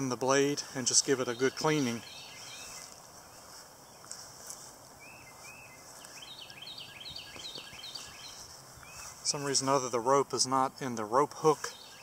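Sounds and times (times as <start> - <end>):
steady high hiss: 0.0 - 12.0
small bird chirping: 1.2 - 9.4.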